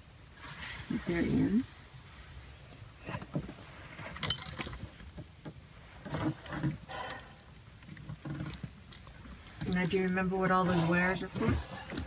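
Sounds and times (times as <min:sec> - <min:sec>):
metallic clinks and knocks: 0:04.2 - 0:05.2, 0:06.2 - 0:10.3.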